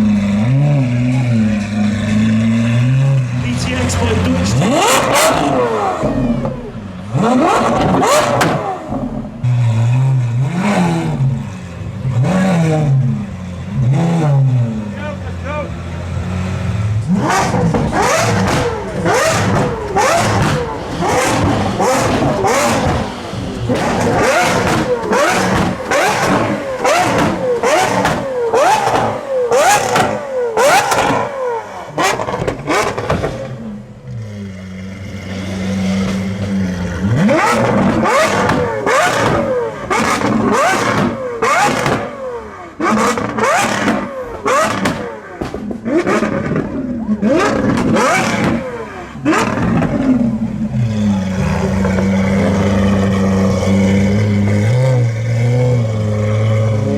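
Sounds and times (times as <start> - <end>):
car engine revving and idling: 0.0 - 56.9
exhaust pops and bangs: 17.3 - 31.4, 32.0 - 33.6, 35.9 - 42.2, 42.8 - 50.5.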